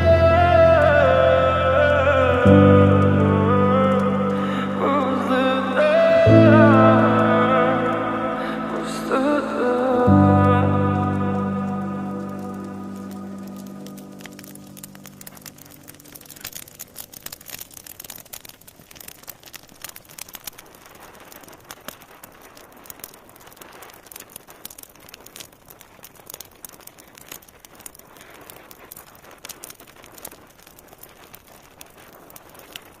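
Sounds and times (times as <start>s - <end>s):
music: 0.0s - 16.6s
wood fire crackling: 0.0s - 33.0s.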